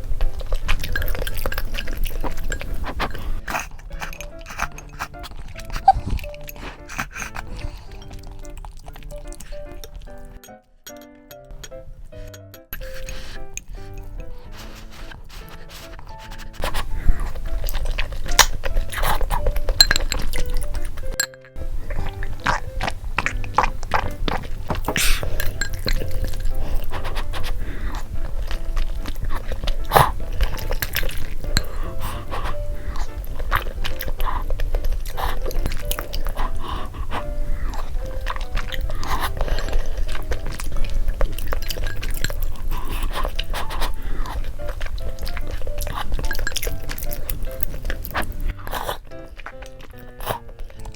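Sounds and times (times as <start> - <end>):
utensils clinking against dishes: 0.0 - 8.3, 9.3 - 14.7, 17.6 - 48.5
background music: 0.0 - 50.9
person chewing: 0.0 - 50.9
liquid sloshing: 12.9 - 48.6.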